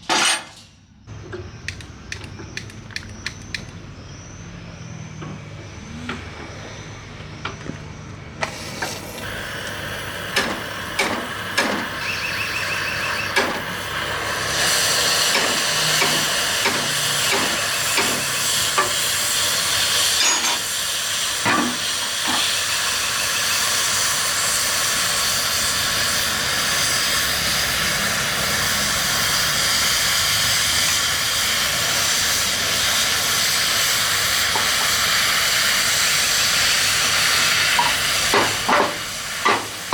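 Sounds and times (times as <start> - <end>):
torch flame hissing: 8.4 - 39.9
sharp metal knocks: 37.8 - 39.8.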